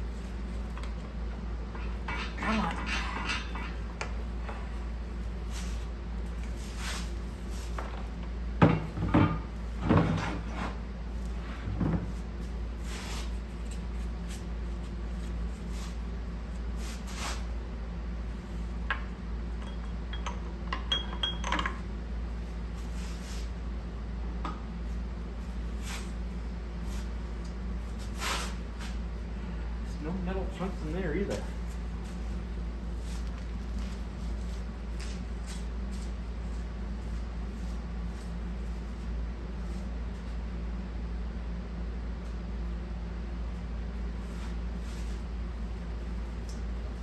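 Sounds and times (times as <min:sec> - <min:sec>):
low steady hum: 0:00.0 - 0:47.0
metal tools clinking and clanking: 0:01.8 - 0:03.8.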